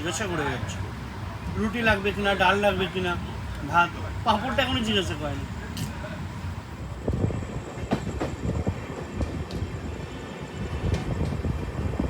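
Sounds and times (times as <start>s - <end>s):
train coach rumbling: 0.0s - 12.0s
wheels clacking and knocking: 7.1s - 10.0s.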